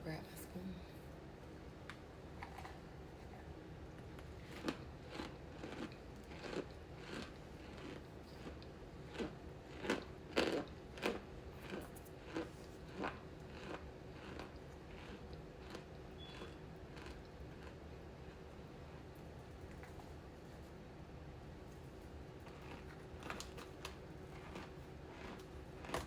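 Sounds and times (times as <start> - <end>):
crunchy snack chewing: 4.2 - 17.8, 22.4 - 26.0.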